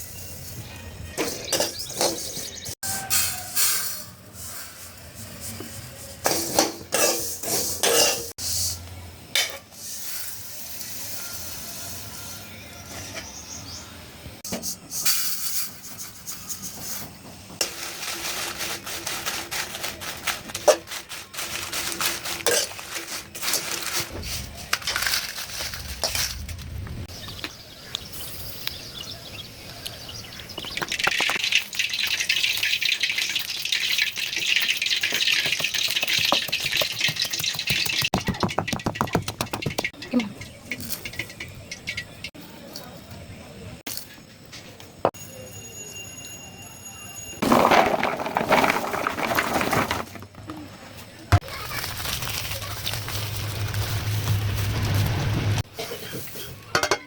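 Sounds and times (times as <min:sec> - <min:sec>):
utensils scraping a pot: 0:01.1 - 0:08.7, 0:15.0 - 0:26.5, 0:31.5 - 0:42.4.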